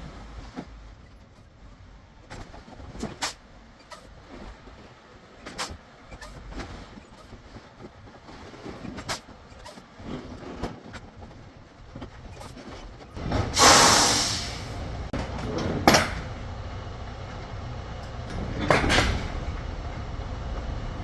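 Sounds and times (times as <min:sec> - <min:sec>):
truck engine running low: 0:11.1 - 0:21.0
air brake hiss: 0:13.5 - 0:14.9.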